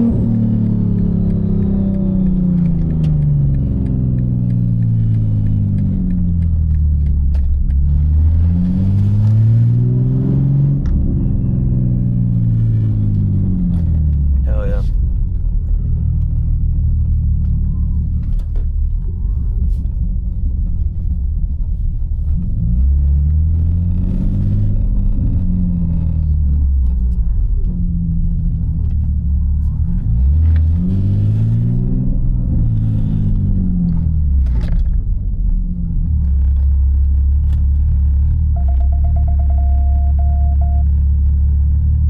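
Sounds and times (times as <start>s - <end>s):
car engine drone: 0.0s - 42.0s.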